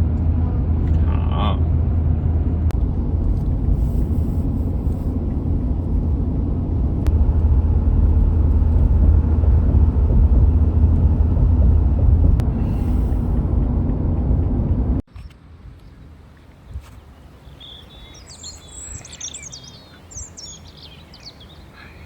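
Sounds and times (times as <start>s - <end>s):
vehicle rumble: 0.0s - 22.0s.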